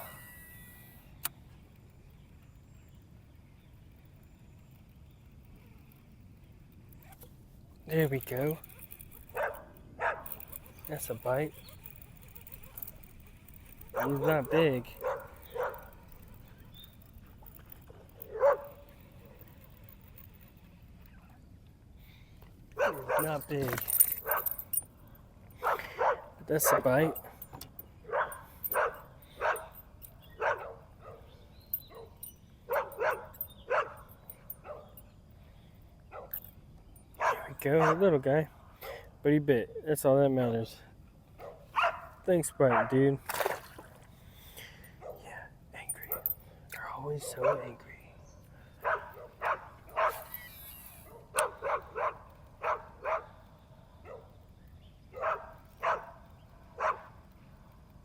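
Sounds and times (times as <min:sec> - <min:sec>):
dog barking: 0:09.4 - 0:10.4, 0:13.9 - 0:14.3, 0:15.0 - 0:16.0, 0:18.3 - 0:18.8, 0:22.8 - 0:23.4, 0:25.6 - 0:26.8, 0:28.1 - 0:29.7, 0:30.4 - 0:31.3, 0:31.9 - 0:34.0, 0:37.2 - 0:38.0, 0:41.4 - 0:42.1, 0:47.3 - 0:47.8, 0:48.8 - 0:50.3, 0:51.1 - 0:53.3, 0:55.1 - 0:56.2, 0:56.8 - 0:57.1.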